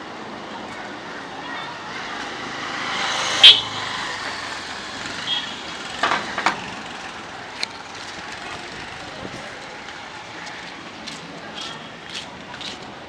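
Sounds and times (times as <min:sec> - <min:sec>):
traffic noise: 0:00.0 - 0:13.0.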